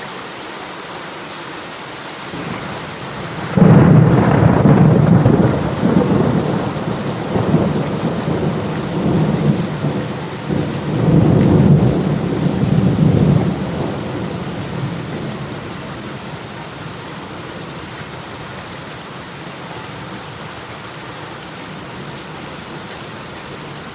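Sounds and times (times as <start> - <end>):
steady rain falling: 0.0 - 23.9
rolling thunder rumbles: 2.4 - 18.2.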